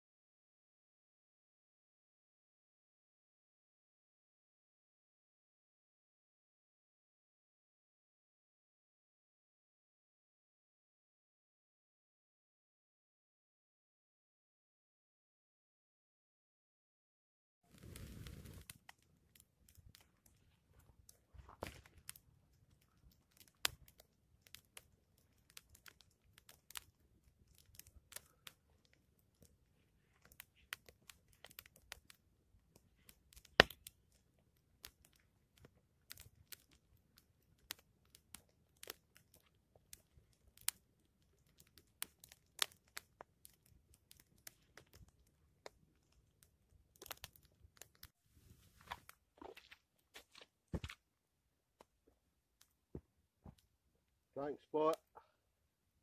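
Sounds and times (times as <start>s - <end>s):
small clicks and crackles: 17.7s - 51.1s.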